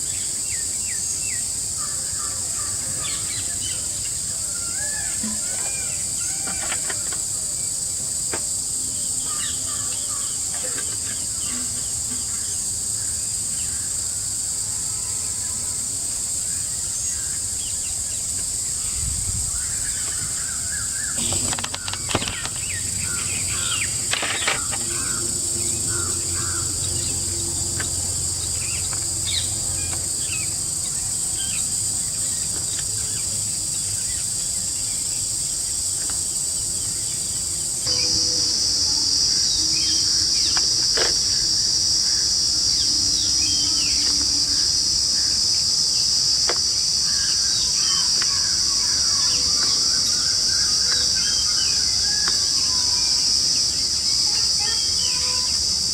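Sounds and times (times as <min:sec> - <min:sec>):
forest insects droning: 0:00.0 - 0:55.9
bird calls: 0:18.8 - 0:27.9.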